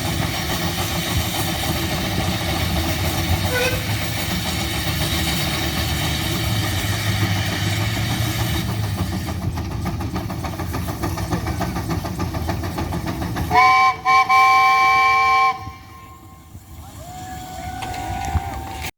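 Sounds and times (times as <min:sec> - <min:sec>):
steam engine exhaust chuffing: 0:00.0 - 0:18.9
steam whistle blowing: 0:03.5 - 0:04.0, 0:13.5 - 0:18.7.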